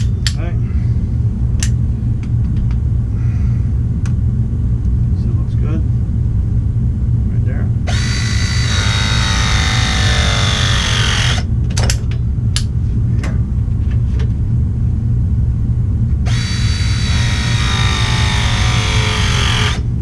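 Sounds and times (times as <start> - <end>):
low hum: 0.0 - 20.0
crimping tool motor whine: 7.9 - 11.5, 16.2 - 20.0.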